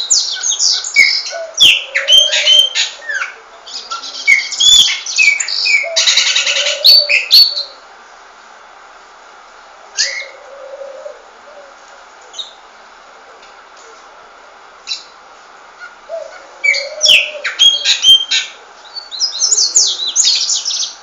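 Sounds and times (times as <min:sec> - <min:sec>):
songbirds chirping and singing: 0:00.0 - 0:07.8, 0:15.8 - 0:21.0.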